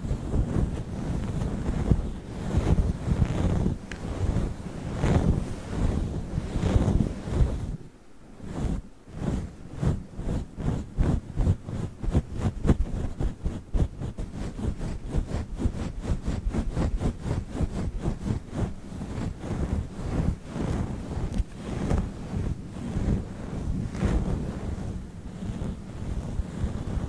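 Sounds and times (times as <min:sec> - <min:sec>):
microphone windscreen being rubbed: 0:00.0 - 0:27.0.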